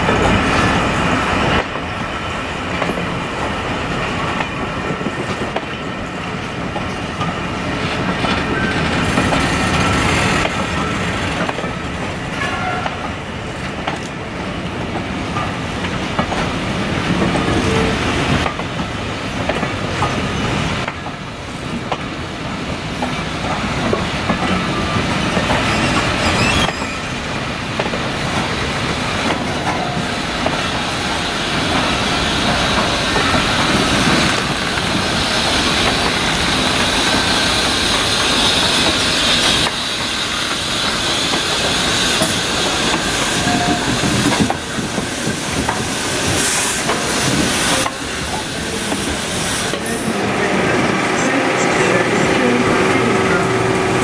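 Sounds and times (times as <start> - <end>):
train wheels clicking over rail joints: 0.0 - 50.4
steam hissing: 24.6 - 54.0
flange squeal: 24.8 - 27.4.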